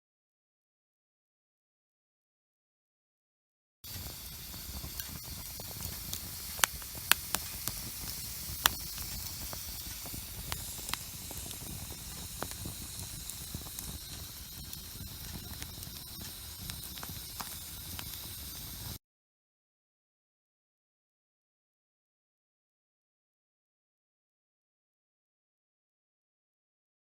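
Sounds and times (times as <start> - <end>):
campfire crackling and popping: 3.9 - 19.0.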